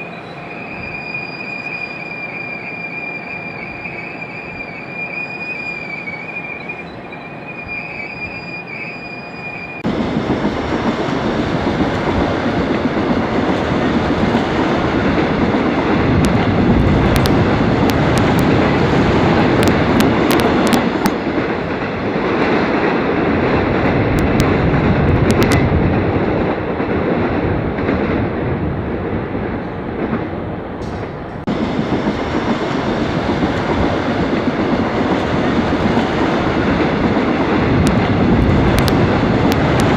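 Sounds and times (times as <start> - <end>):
train wheel squeal: 0.0 - 9.8
subway train running noise: 0.0 - 39.9.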